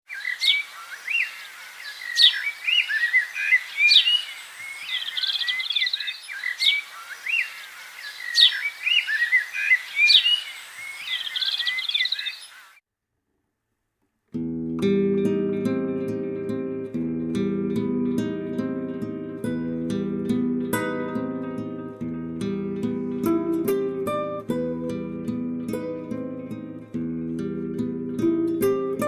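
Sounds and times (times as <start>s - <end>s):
birds chirping and trilling: 0.1s - 12.8s.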